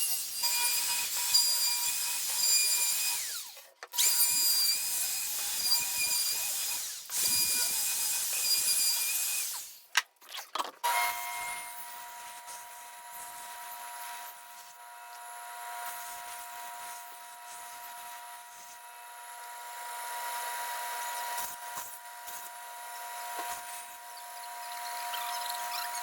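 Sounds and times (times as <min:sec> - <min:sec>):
electric power tool whining: 0:00.5 - 0:09.7.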